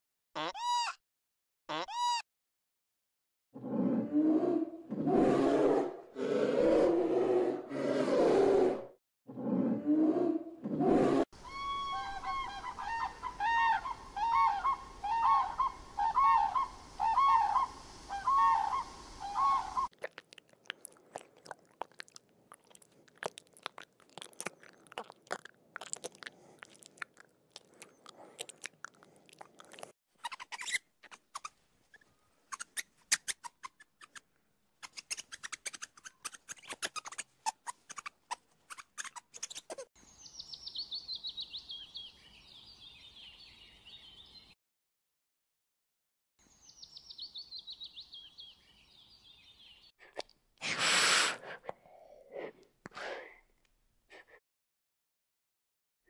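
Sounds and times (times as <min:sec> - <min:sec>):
bird calling: 0:11.4 - 0:20.0.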